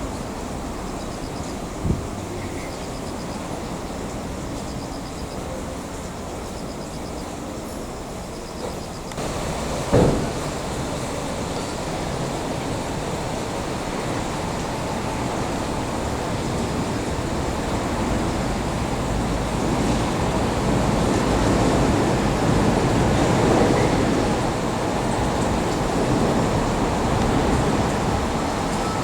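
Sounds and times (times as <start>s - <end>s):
train cars rumbling on track: 0.0s - 29.0s.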